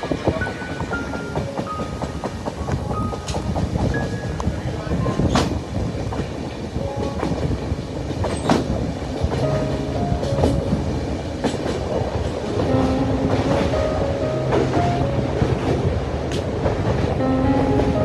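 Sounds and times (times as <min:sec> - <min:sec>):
train rumbling along track: 0:00.0 - 0:18.0
wheels clacking over rail joints: 0:00.2 - 0:13.7.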